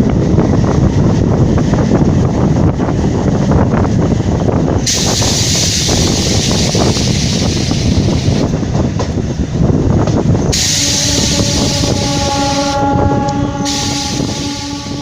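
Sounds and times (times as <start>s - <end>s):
train wheels rumbling and clattering: 0.0s - 15.0s
train horn blast: 10.5s - 15.0s.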